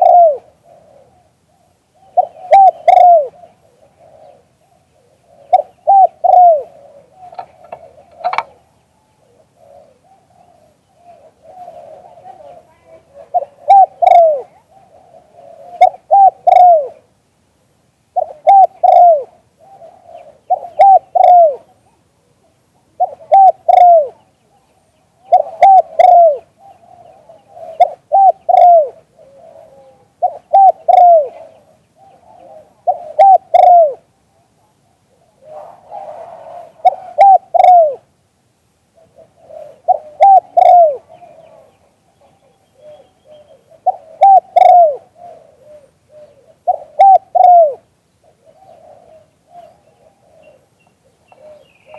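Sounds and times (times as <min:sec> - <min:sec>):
dove cooing: 0:00.0 - 0:17.1, 0:18.1 - 0:38.1, 0:38.9 - 0:51.9.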